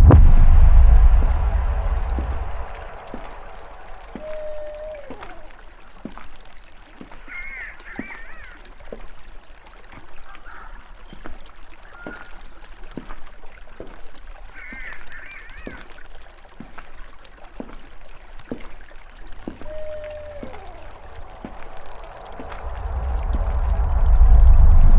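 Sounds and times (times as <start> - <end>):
water splashes and drips: 0.0 - 24.9
bird falling call: 3.8 - 5.6, 19.3 - 23.1
bird warbling call: 4.1 - 5.6, 19.3 - 22.6.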